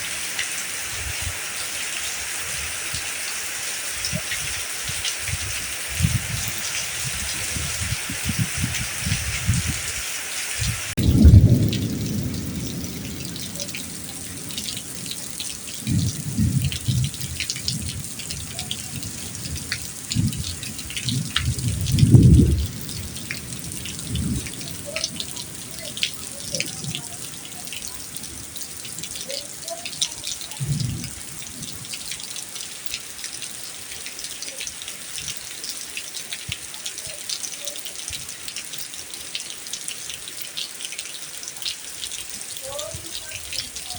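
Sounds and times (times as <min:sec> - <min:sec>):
heavy rain pattering: 0:00.0 - 0:43.9
low rumbles: 0:11.0 - 0:18.3.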